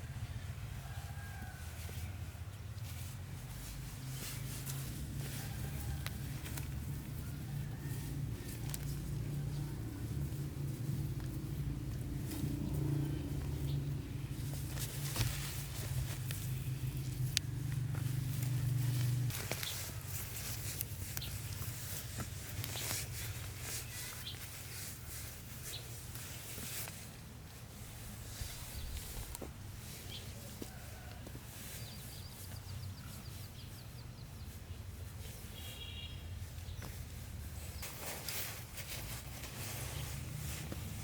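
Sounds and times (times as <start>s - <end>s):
low steady rumble: 0.0s - 24.6s
clicks and rustles: 8.1s - 31.4s
bird chirps: 35.6s - 36.8s.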